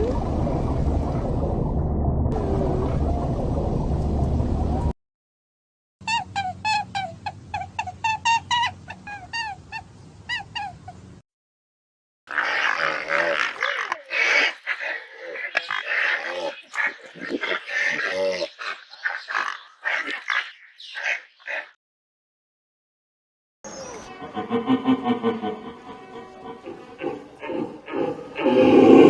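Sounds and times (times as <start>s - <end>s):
low hum: 0.0s - 4.9s
animal yelping calls: 12.3s - 21.7s, 26.1s - 29.0s.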